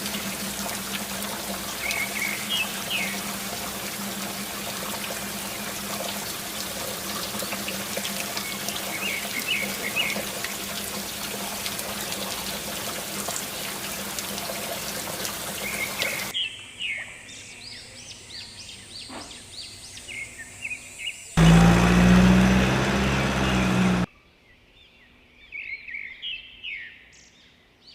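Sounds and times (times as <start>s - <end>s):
water gushing from pump: 0.0s - 16.4s, 21.4s - 24.1s.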